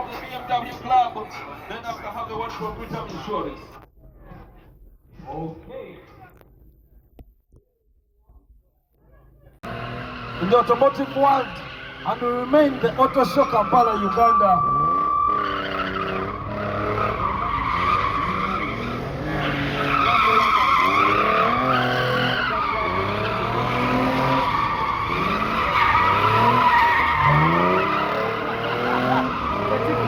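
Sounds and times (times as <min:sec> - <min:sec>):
car engine revving: 0:09.6 - 0:30.0
tyres squealing: 0:10.2 - 0:30.0.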